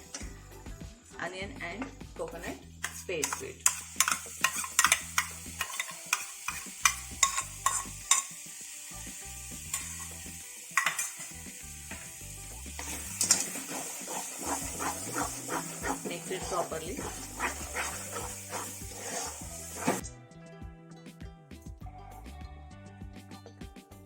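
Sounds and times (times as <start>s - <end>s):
food sizzling in hot oil: 2.7s - 20.0s
spoon scraping and knocking pan: 2.8s - 8.4s, 9.6s - 12.2s, 12.8s - 20.0s.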